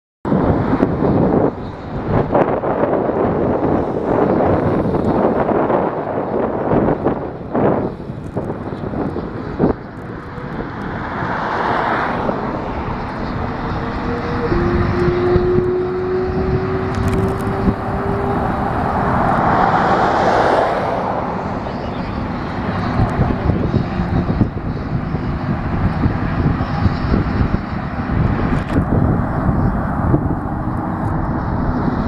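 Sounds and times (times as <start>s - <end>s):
freeway traffic rushing: 0.3s - 32.0s.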